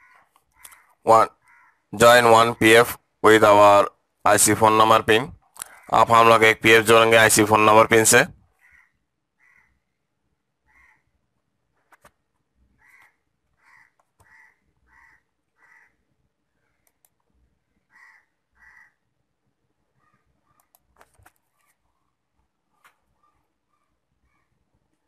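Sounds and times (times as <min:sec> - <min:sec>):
harsh bird calls: 0:00.0 - 0:02.9, 0:05.6 - 0:06.3, 0:08.5 - 0:10.0, 0:10.6 - 0:11.2, 0:12.7 - 0:17.0, 0:17.6 - 0:19.1
faint clicks: 0:16.8 - 0:17.3, 0:20.6 - 0:21.8.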